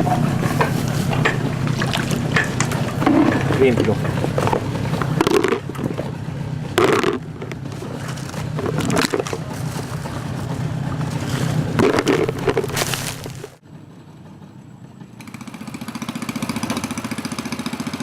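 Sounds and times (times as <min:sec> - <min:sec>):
boat motor running: 0:00.0 - 0:13.6.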